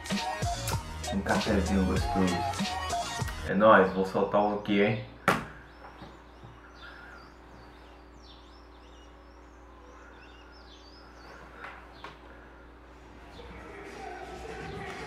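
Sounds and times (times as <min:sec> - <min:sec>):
small birds chirping: 0:01.2 - 0:15.0
low room tone hum: 0:03.5 - 0:15.0.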